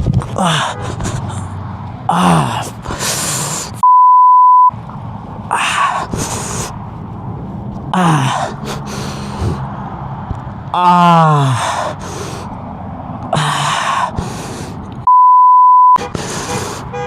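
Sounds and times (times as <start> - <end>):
man gasping and breathing heavily: 0.3 - 3.8, 5.5 - 6.8, 8.0 - 9.8, 10.8 - 12.6, 13.3 - 14.9, 16.0 - 17.0
man groaning: 0.3 - 3.8, 5.5 - 6.6, 7.9 - 9.7, 10.7 - 12.1, 13.3 - 14.4.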